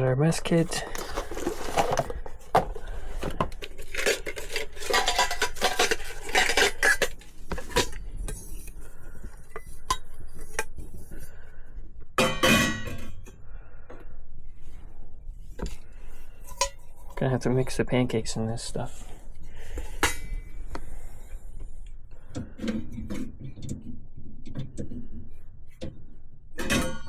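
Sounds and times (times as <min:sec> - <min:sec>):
pots and utensils clattering: 0:00.3 - 0:08.8, 0:12.2 - 0:13.3, 0:26.6 - 0:27.0.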